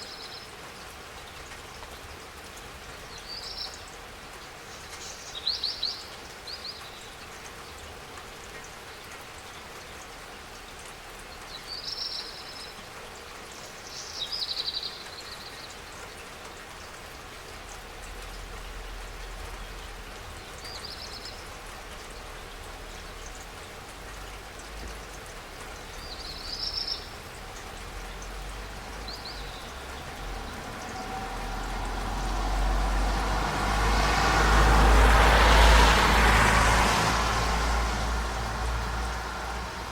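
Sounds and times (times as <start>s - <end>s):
rain falling: 0.0s - 39.9s
vehicle approaching: 17.6s - 39.9s
bird chirping: 25.8s - 31.8s.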